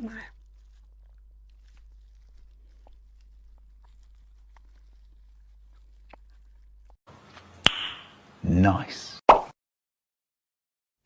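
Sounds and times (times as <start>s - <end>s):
faint chewing: 0.0s - 7.0s
low hum: 0.0s - 7.0s
wet mouth clicks: 0.9s - 7.0s.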